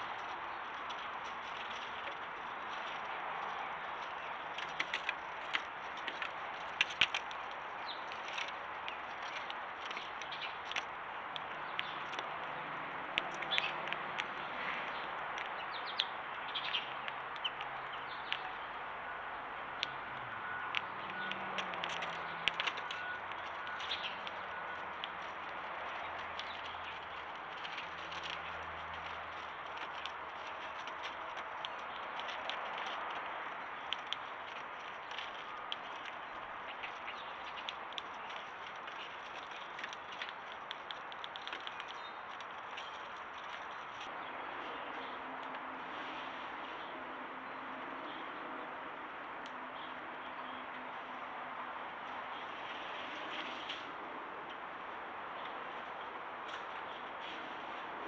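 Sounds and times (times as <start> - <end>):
sharp clicks: 0.0 - 18.5, 20.6 - 44.1
small birds chirping: 0.0 - 58.0.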